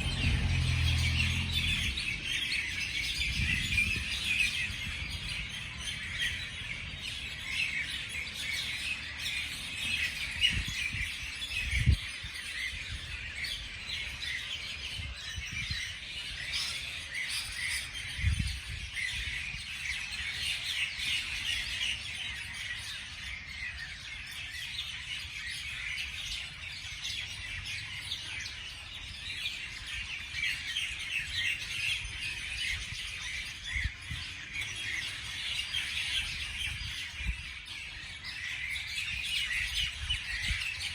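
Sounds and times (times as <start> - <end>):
low wind rumble: 0.0 - 7.1, 10.4 - 13.2, 18.2 - 19.3
small birds chirping chorus: 0.0 - 40.9.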